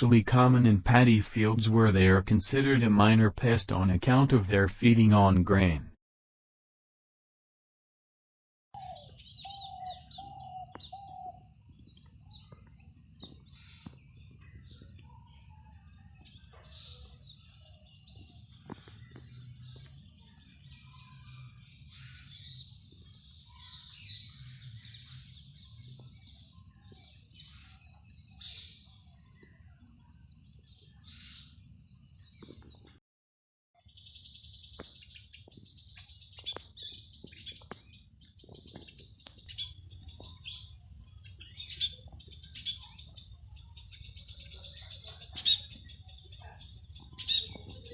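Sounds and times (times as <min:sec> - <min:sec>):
small birds chirping: 0:08.8 - 0:32.9, 0:33.8 - 0:47.9.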